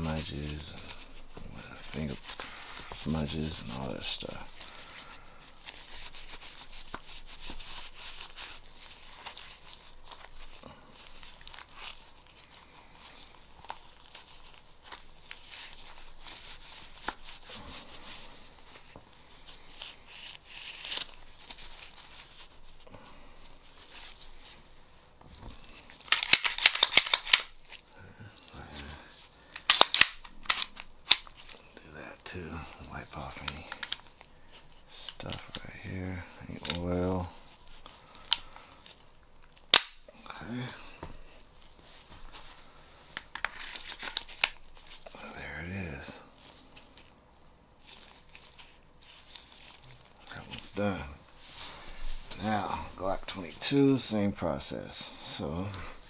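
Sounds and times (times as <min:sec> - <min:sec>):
cloth rag rubbing on pistol: 0:00.0 - 0:26.1, 0:30.6 - 0:39.4, 0:47.8 - 0:56.0
gun clicks and knocks: 0:29.6 - 0:31.2.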